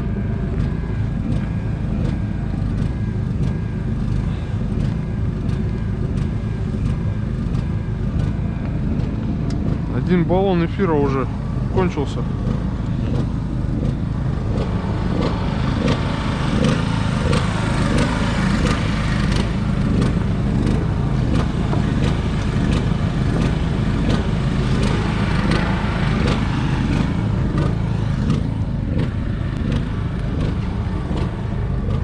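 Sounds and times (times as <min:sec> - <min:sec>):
motor running with ticks: 0:00.0 - 0:32.0.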